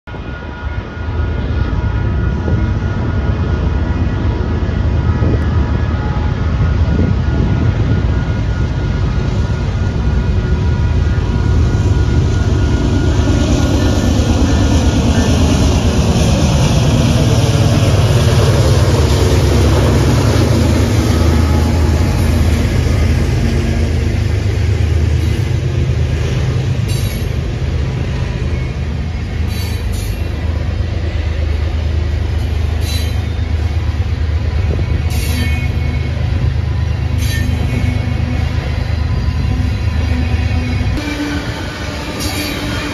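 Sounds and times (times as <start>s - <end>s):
diesel locomotive passing: 0.0s - 42.9s
wheels clicking and squeaking: 32.4s - 33.6s.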